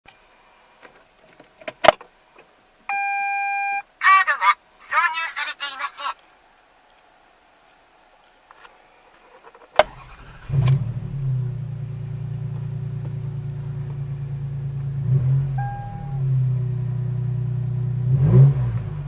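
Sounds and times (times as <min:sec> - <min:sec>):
short beep: 0:02.9 - 0:03.8, 0:15.6 - 0:16.3
car engine starting and idling: 0:09.4 - 0:19.0.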